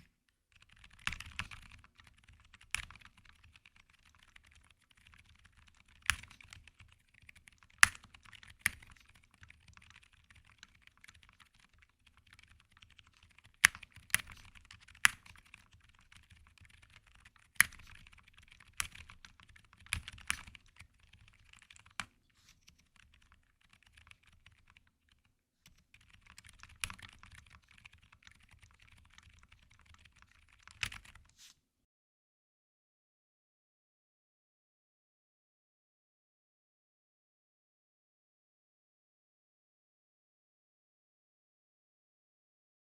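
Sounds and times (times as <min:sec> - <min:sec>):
sharp keyboard clacks: 0:00.0 - 0:22.1, 0:22.8 - 0:31.3
muted keyboard typing: 0:00.0 - 0:31.3.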